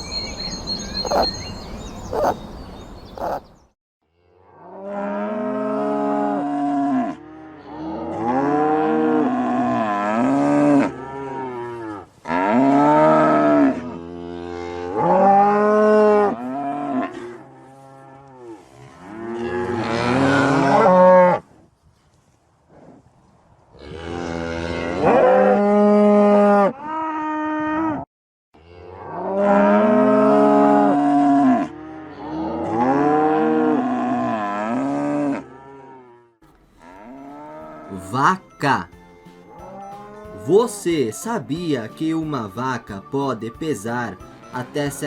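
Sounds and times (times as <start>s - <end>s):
cows mooing: 1.0s - 1.4s, 2.1s - 2.4s, 3.2s - 3.4s, 4.6s - 21.4s, 28.6s - 38.3s, 39.0s - 40.6s.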